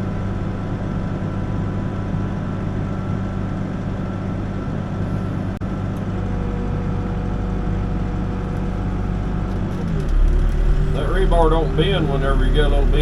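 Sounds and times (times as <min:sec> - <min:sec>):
backhoe diesel engine running: 0:00.0 - 0:13.0.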